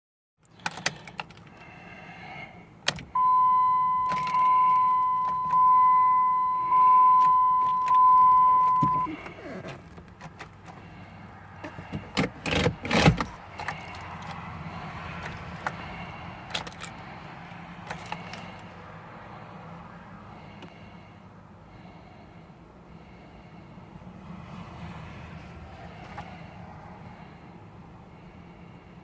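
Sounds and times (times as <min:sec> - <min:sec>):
key and ignition clicks: 0:00.4 - 0:01.6, 0:03.9 - 0:06.0, 0:06.7 - 0:10.8
car warning chime dinging: 0:03.1 - 0:09.2.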